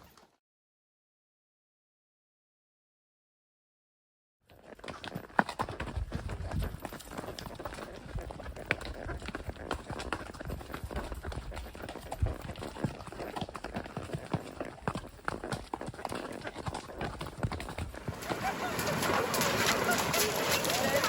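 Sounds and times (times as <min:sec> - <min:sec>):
horse hooves clip-clopping: 0:04.5 - 0:21.0.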